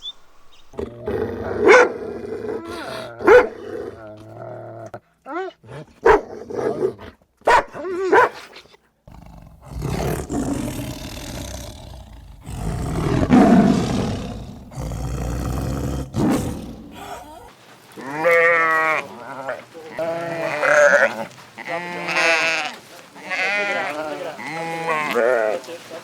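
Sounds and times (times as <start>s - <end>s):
young goat bleating: 18.0s - 25.6s.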